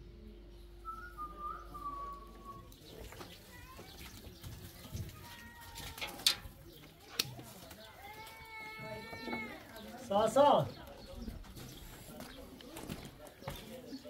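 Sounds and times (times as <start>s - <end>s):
whistled bird call: 0.8s - 2.7s.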